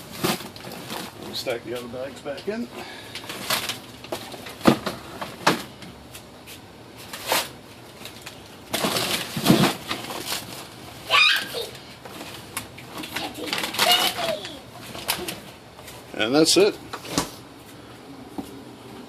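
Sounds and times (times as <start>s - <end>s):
frozen packages thudding: 0.0s - 1.4s, 3.1s - 5.8s, 7.0s - 15.5s
plastic bags rustling: 0.0s - 1.8s, 2.5s - 5.4s, 7.0s - 17.1s.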